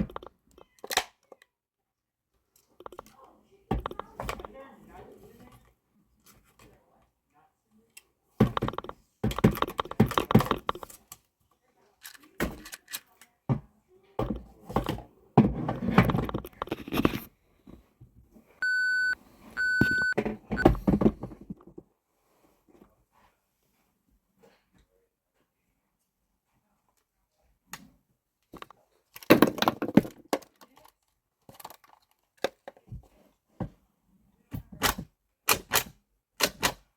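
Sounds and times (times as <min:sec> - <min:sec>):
short electronic beeps: 0:18.6 - 0:20.7
toy truck plastic clattering: 0:28.6 - 0:32.8.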